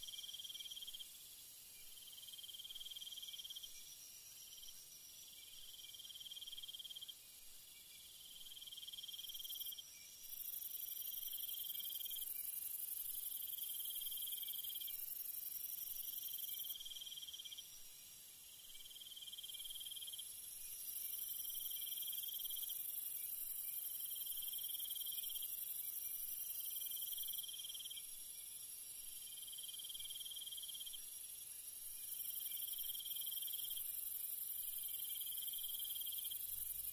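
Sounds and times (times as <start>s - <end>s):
high insect drone: 0.0s - 36.9s.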